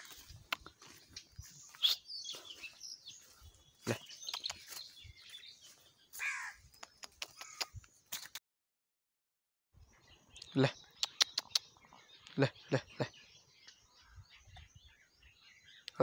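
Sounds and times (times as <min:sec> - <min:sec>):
high bird chirps: 0:00.0 - 0:08.3, 0:09.8 - 0:16.0
harsh caw-like bird calls: 0:06.1 - 0:06.7, 0:07.3 - 0:07.8.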